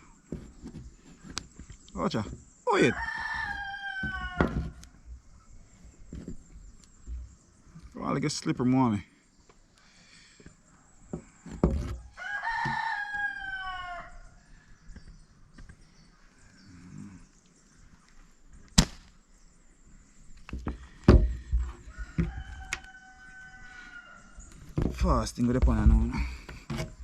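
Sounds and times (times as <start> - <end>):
rooster crowing: 2.8 - 4.9, 12.1 - 14.4, 21.6 - 24.5.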